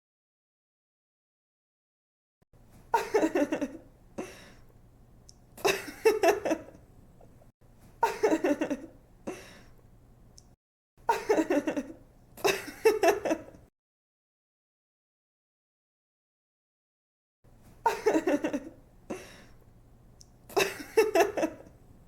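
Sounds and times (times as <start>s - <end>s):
young woman giggling: 2.9s - 4.4s, 5.6s - 6.8s, 8.0s - 9.5s, 11.1s - 13.6s, 17.8s - 19.3s, 20.5s - 21.7s
faint low hum: 17.5s - 22.0s.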